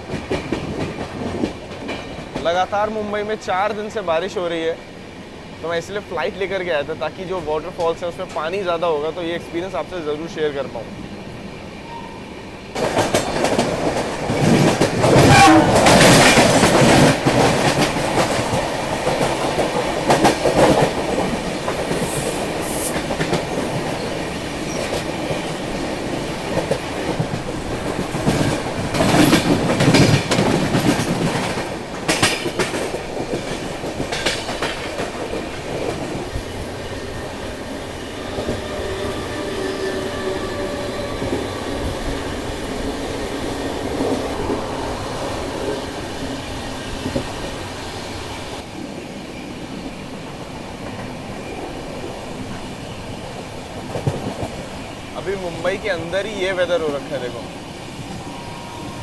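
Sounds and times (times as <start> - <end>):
train wheels clattering over rails: 0.0 - 2.9, 12.7 - 48.7, 49.8 - 58.1
passing trains rushing: 0.0 - 59.0.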